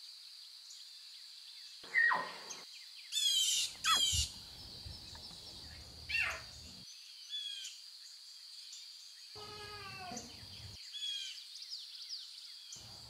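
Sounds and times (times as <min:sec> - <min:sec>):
birds chirping: 0:01.6 - 0:07.8, 0:08.7 - 0:13.0
lower bird call: 0:01.8 - 0:02.6.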